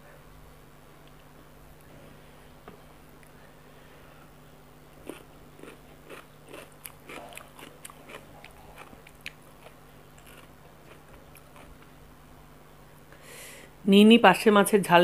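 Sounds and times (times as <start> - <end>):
crunching raw cucumber: 5.0 - 12.0.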